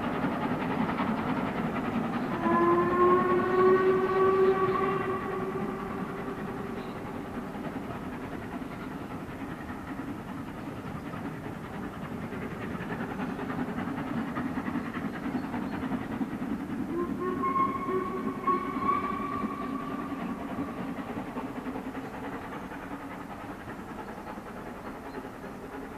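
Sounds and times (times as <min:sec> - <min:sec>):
steam locomotive working: 0:00.0 - 0:25.9
steam whistle: 0:02.3 - 0:07.2, 0:16.9 - 0:20.7.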